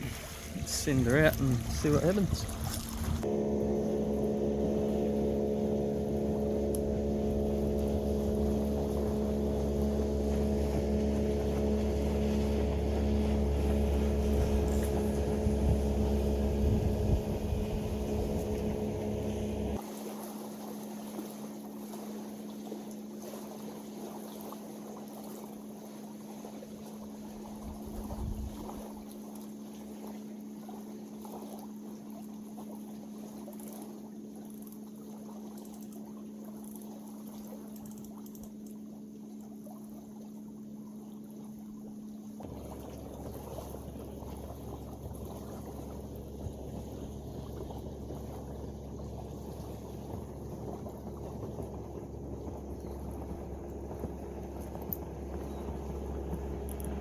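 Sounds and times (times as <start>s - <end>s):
faint steady hum: 0.0s - 19.8s, 41.5s - 57.0s
motor droning: 0.0s - 19.8s, 41.6s - 57.0s.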